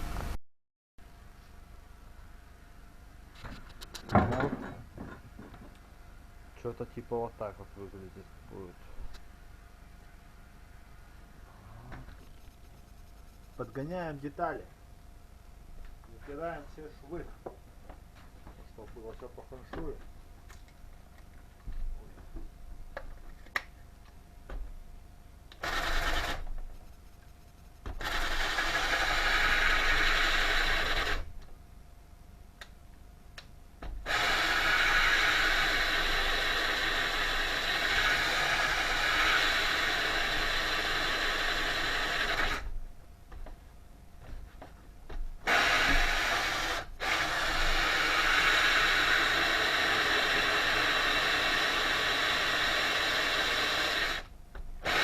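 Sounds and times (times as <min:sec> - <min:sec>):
power tool cutting wood: 0:25.6 - 0:26.4, 0:28.0 - 0:31.3, 0:34.0 - 0:42.7, 0:45.4 - 0:55.0.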